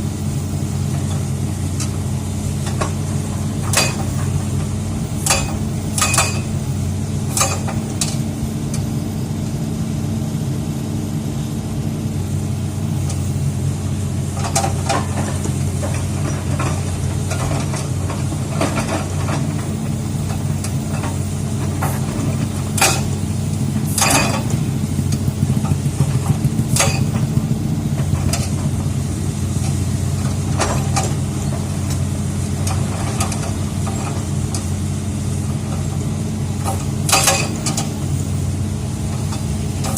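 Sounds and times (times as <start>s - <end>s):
excavator diesel engine running: 0.0s - 39.9s
metallic clanks on rock: 3.6s - 4.4s, 5.2s - 6.6s, 7.3s - 8.2s, 20.6s - 23.2s, 23.9s - 24.6s, 25.7s - 27.3s, 36.6s - 38.0s.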